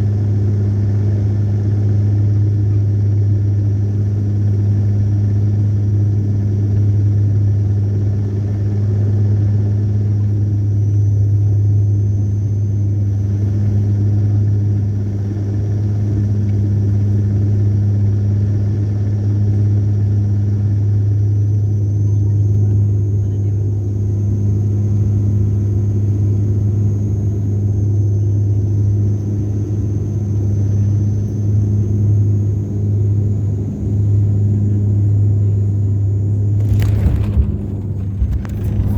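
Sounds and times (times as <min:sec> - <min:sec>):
low motor hum: 0:36.4 - 0:38.9.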